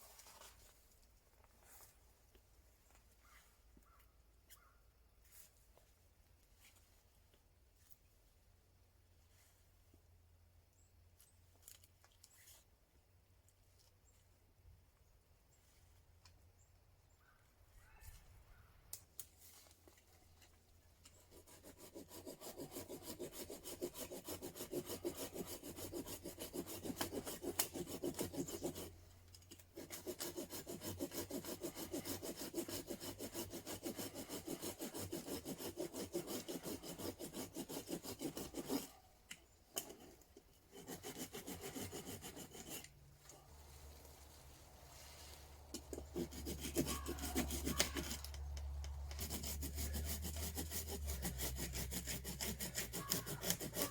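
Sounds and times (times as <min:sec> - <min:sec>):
hand saw cutting wood: 0:20.9 - 0:39.0, 0:39.7 - 0:43.0, 0:45.3 - 0:53.9.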